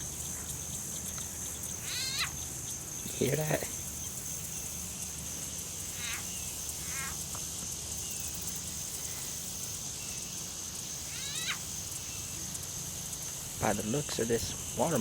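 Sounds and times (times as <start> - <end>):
steady high-pitched hum: 0.0 - 15.0
baby alligator chirping grunts: 1.8 - 2.4, 5.8 - 7.2, 11.0 - 12.6.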